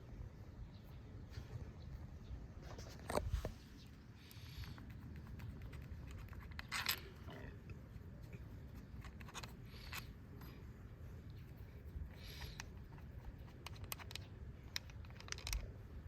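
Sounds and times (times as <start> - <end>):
tools and metal parts clicking: 5.8 - 7.3, 8.9 - 10.2, 12.3 - 15.8.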